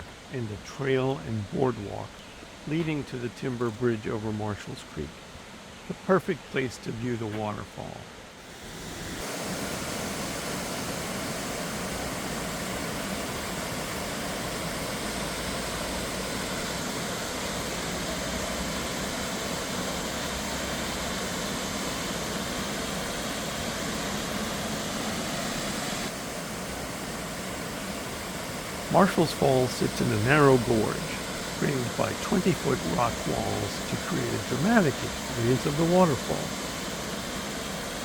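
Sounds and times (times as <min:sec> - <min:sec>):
waterfall roaring: 0:13.9 - 0:38.0.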